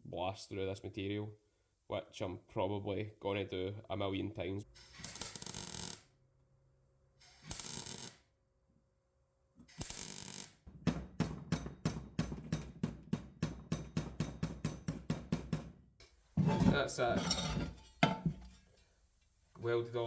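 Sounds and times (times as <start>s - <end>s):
welder tacking in short bursts: 4.8s - 6.1s, 7.2s - 8.3s, 9.6s - 10.6s.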